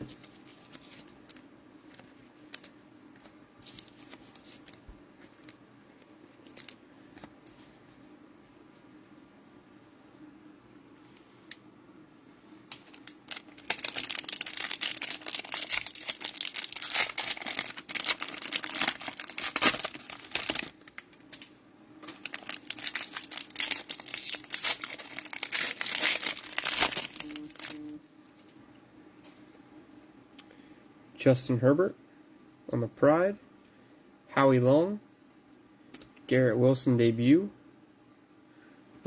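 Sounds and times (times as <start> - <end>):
cellophane wrapper crinkling: 12.7 - 28.6.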